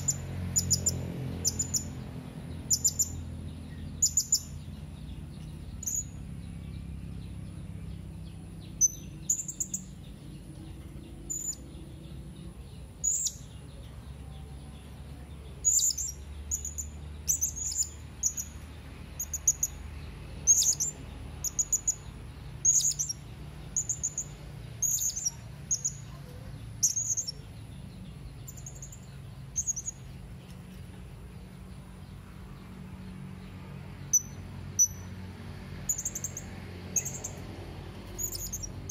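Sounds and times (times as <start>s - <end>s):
parrot chirping: 0.0s - 2.0s, 15.6s - 19.8s, 38.2s - 38.9s
steady low hum: 0.0s - 38.9s.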